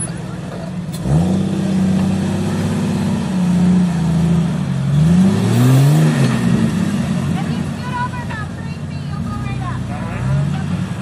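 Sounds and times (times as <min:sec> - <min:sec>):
engine revving under load: 0:00.0 - 0:08.4.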